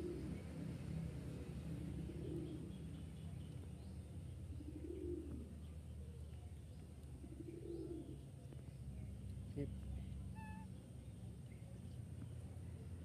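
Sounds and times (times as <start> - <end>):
bird cooing: 0.0 - 3.0, 4.4 - 5.8, 7.2 - 8.4, 10.4 - 10.7
faint low hum: 0.0 - 13.0.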